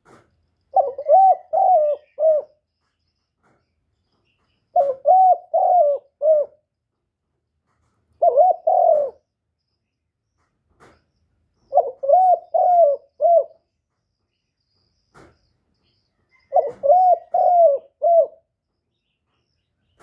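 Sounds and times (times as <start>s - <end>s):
dove cooing: 0.7s - 2.6s, 4.7s - 6.7s, 8.2s - 9.3s, 11.7s - 13.7s, 16.3s - 18.5s.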